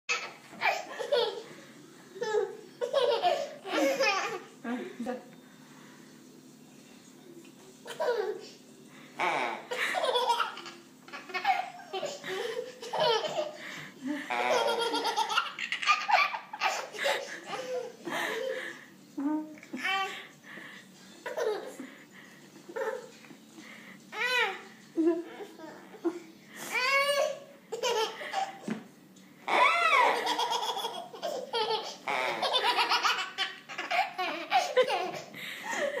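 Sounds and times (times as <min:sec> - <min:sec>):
toy fart noise: 0:09.2 - 0:09.6
toddler belly-laughing: 0:09.2 - 0:13.6, 0:29.5 - 0:35.3.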